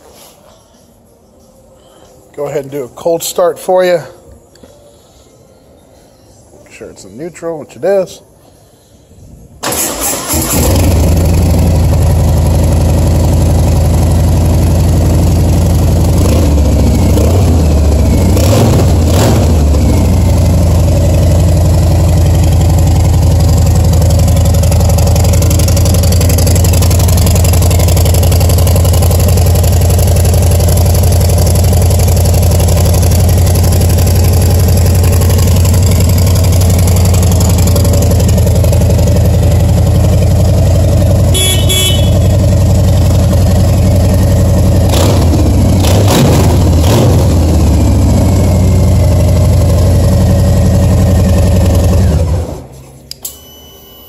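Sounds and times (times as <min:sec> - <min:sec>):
motorcycle engine idling: 0:10.8 - 0:45.8, 0:46.6 - 0:52.7.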